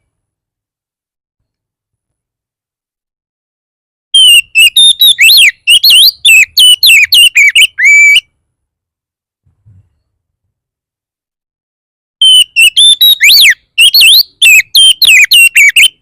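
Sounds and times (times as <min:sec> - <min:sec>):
magpie-robin whistling song: 0:04.2 - 0:08.3, 0:12.2 - 0:16.0.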